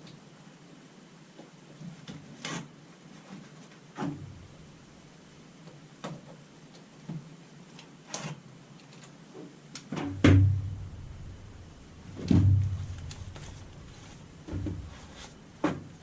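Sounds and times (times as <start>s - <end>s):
heavy thuds: 10.1s - 16.0s.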